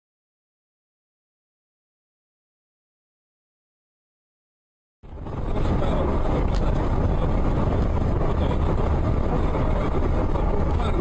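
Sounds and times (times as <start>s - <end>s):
car engine and road noise: 5.0s - 11.0s.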